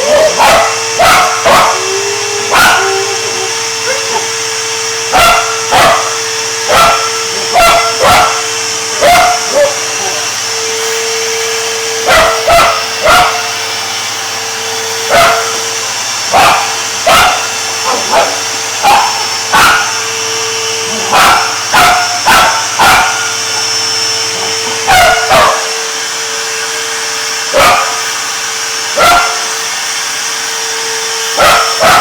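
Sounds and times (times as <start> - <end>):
dog barking: 0.0 - 4.4, 5.0 - 10.4, 12.0 - 13.6, 15.1 - 15.6, 16.3 - 20.1, 20.8 - 23.7, 24.3 - 25.8, 27.5 - 28.1, 29.0 - 29.5, 31.4 - 32.0
vacuum cleaner running: 0.0 - 32.0.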